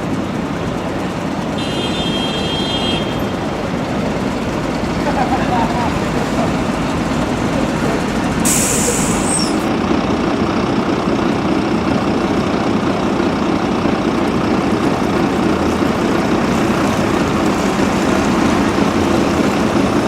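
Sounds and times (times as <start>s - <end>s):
bus diesel engine running: 0.0s - 20.0s
air brakes hiss: 8.4s - 9.7s.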